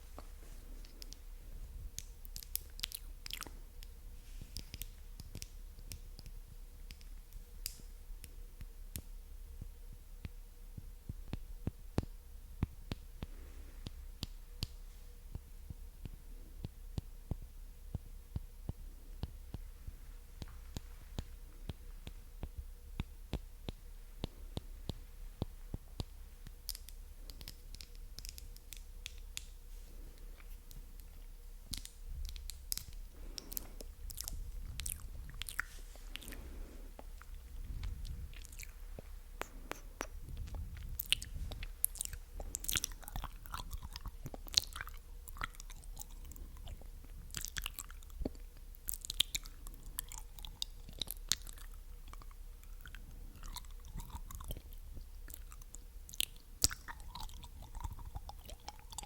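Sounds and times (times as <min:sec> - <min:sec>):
wet mouth clicks and smacks: 0:01.9 - 0:09.1, 0:20.4 - 0:29.6, 0:30.3 - 0:59.0.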